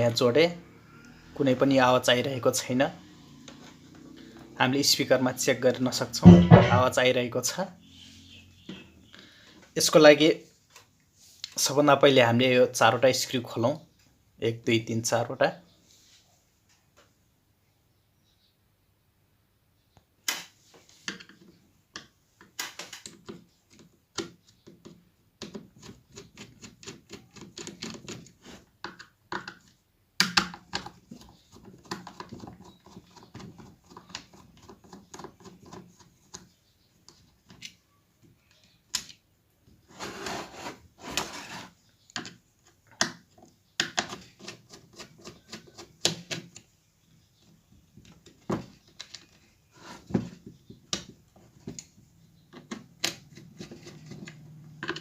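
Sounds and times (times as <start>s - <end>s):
knocks of tool and parts: 6.2s - 7.0s.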